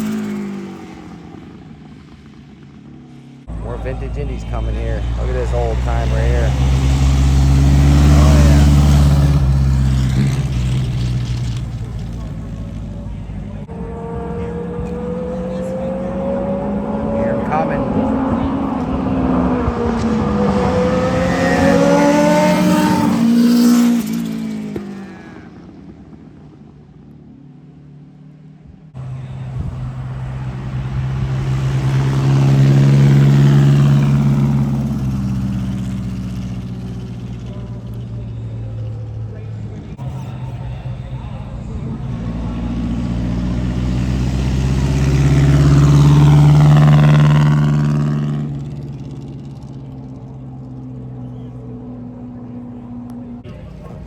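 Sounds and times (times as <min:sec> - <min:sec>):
race car engine revving past: 0:03.1 - 0:26.2, 0:29.0 - 0:54.0.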